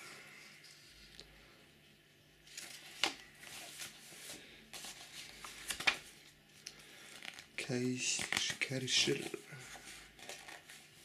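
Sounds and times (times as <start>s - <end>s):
paper brochure rustling: 2.4s - 11.0s.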